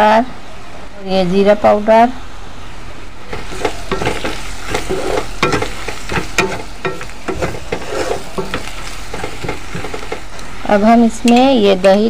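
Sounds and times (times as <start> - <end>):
onions sizzling in hot oil: 3.2 - 12.0
spatula scraping and tapping pan: 3.3 - 12.0.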